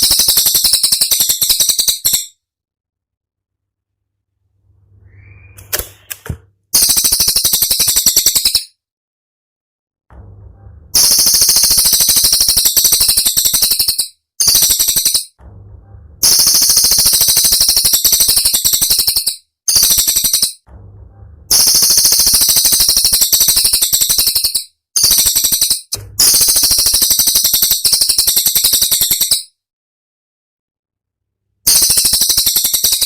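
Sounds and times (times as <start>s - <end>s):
bird shrill chattering song: 0.0s - 2.3s, 5.0s - 5.7s, 11.0s - 15.3s, 16.2s - 20.6s, 31.7s - 33.0s.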